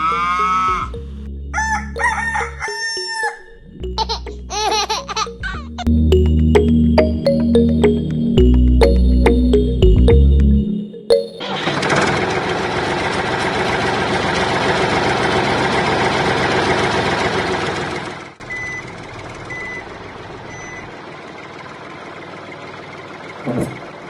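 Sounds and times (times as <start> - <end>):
loud mechanical noise: 11.4 - 20.4.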